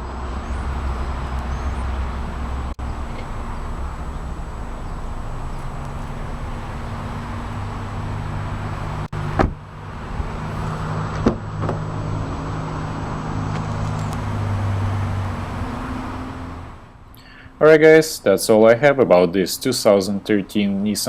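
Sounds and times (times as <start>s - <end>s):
car engine idling: 0.0s - 17.4s
sharp thumps: 9.1s - 10.3s, 11.1s - 11.9s.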